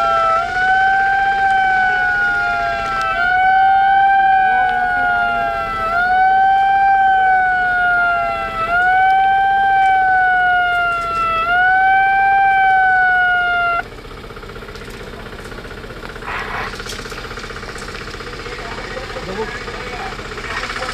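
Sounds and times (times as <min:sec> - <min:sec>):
emergency siren wailing: 0:00.0 - 0:14.0.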